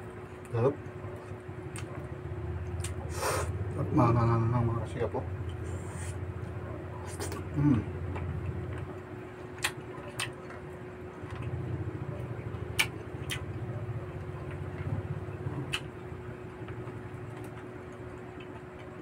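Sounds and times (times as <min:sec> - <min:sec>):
faint steady hum: 0:00.0 - 0:19.0
close-up chewing: 0:07.0 - 0:11.6.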